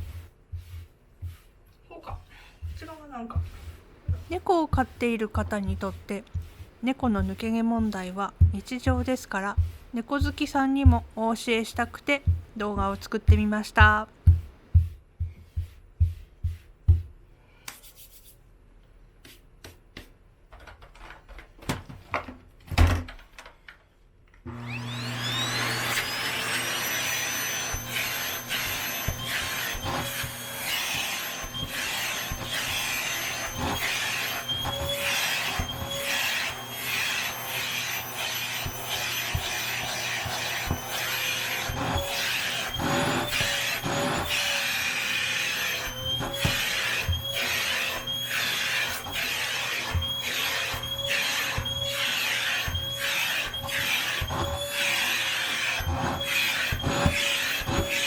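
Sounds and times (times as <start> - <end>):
vacuum cleaner running: 2.6 - 14.4, 24.5 - 58.0.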